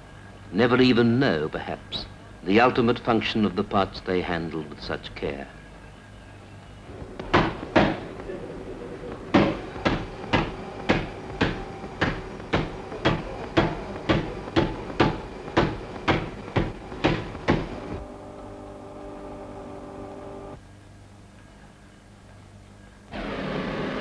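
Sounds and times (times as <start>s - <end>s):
faint low hum: 0.0s - 24.0s
held tone of several notes: 6.8s - 20.6s
sharp knocks: 6.9s - 18.0s.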